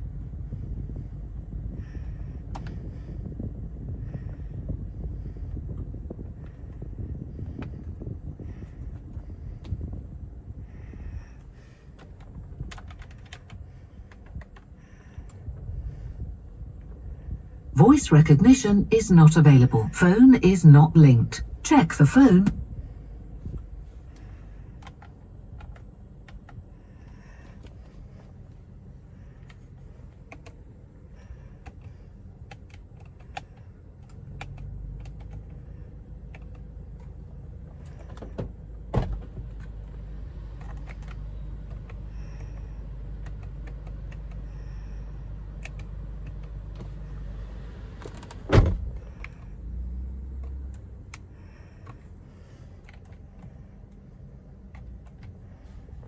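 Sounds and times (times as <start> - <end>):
car cabin hum: 0.0 - 56.0.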